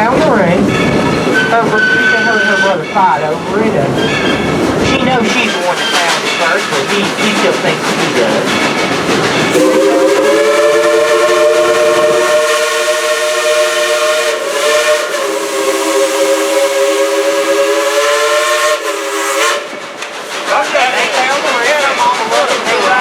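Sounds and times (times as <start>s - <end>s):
steam hissing: 4.6s - 23.0s
steam whistle blast: 9.5s - 19.8s.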